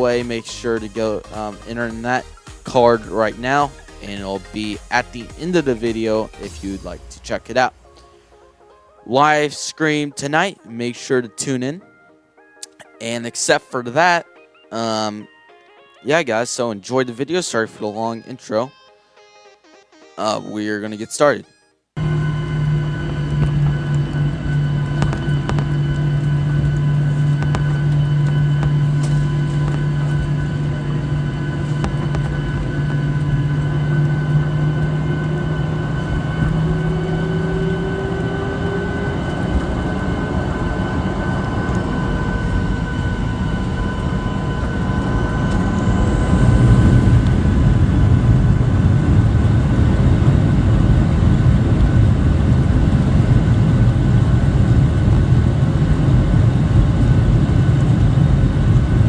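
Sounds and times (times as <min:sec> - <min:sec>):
airliner engines whining: 0:00.0 - 0:09.4, 0:22.0 - 0:59.0.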